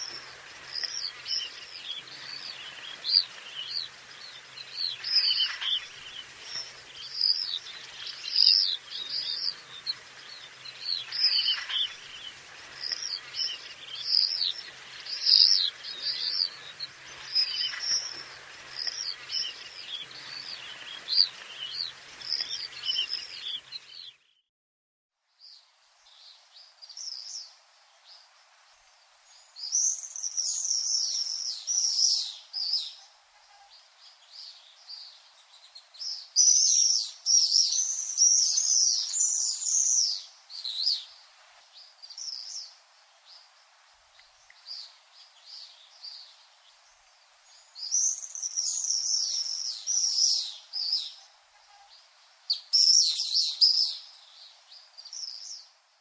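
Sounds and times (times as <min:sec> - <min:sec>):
swifts screaming: 0:00.0 - 0:24.1.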